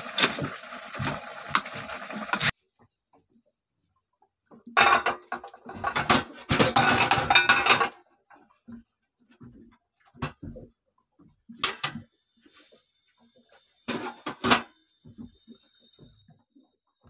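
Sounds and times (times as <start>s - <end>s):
hard objects clattering and knocking: 4.8s - 8.0s.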